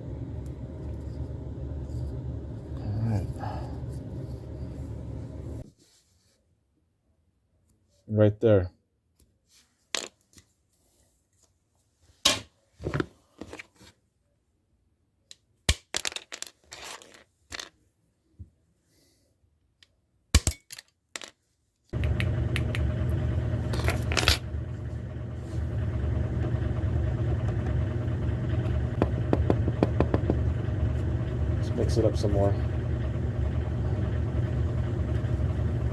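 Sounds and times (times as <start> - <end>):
steady machine hum: 0.0 - 5.6, 22.0 - 35.9
small objects clinking and scraping: 16.0 - 17.8.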